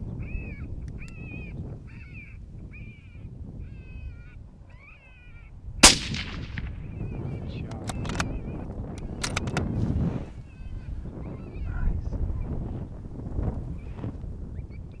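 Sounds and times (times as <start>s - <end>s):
wind noise: 0.0s - 4.7s, 5.5s - 15.0s
sharp clicks: 5.8s - 6.8s, 7.7s - 8.3s, 8.9s - 9.7s
rifle shot with echo: 5.8s - 7.0s.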